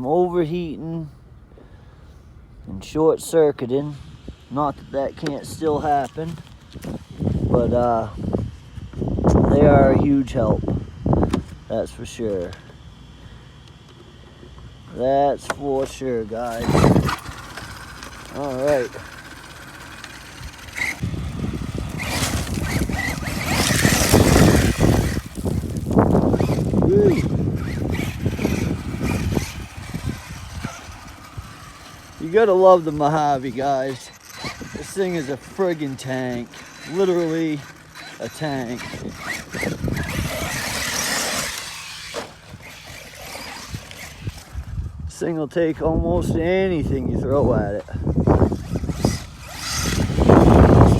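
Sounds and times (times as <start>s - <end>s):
electric rc truck motor: 3.2s - 45.1s, 45.9s - 50.9s
tyres churning loose dirt: 11.2s - 44.7s, 45.7s - 50.9s.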